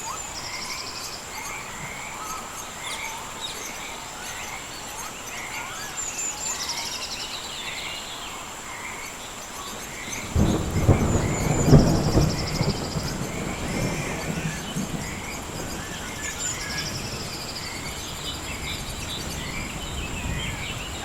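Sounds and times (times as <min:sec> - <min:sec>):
birds chirping: 0:00.0 - 0:21.0
high insect whine: 0:00.0 - 0:21.0
thunder rumbling: 0:10.2 - 0:21.0.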